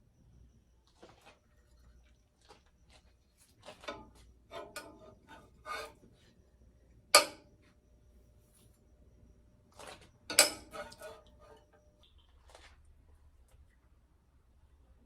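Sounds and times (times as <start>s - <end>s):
kitchen utensils tapping and scraping: 3.6s - 6.0s, 7.2s - 7.4s, 9.8s - 11.8s.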